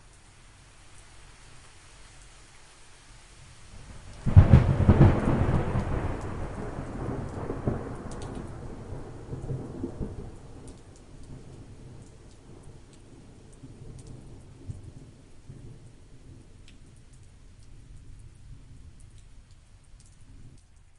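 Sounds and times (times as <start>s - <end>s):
faint raindrop ticks: 0.0s - 20.9s
steady light rain: 0.0s - 20.9s
thunderclap rumbling: 4.2s - 12.0s.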